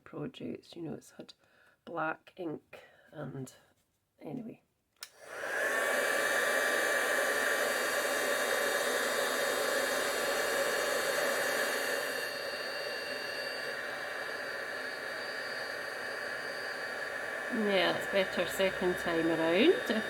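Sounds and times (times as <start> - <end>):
heat gun blowing: 5.0 - 20.0.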